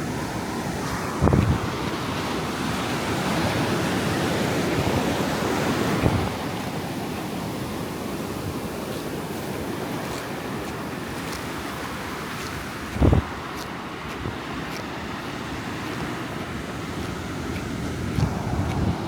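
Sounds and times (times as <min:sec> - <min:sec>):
ocean surf washing onto beach: 0:00.0 - 0:19.0
wind buffeting microphone: 0:00.0 - 0:19.0.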